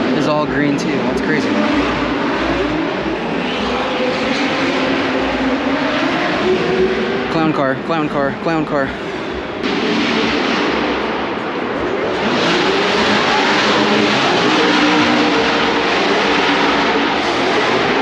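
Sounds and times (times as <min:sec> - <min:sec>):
race car engines revving: 0:00.0 - 0:18.0.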